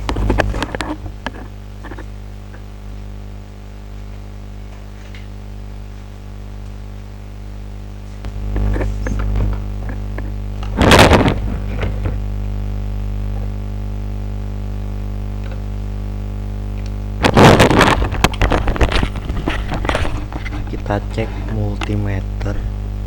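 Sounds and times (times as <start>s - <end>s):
electrical hum: 0.0s - 23.0s
rustling and clattering: 17.2s - 21.6s.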